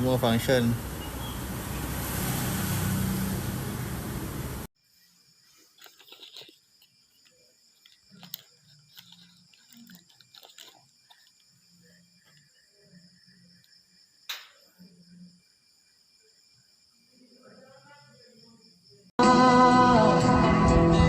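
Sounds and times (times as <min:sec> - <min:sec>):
faint small clicks and crackles: 0:05.8 - 0:11.6.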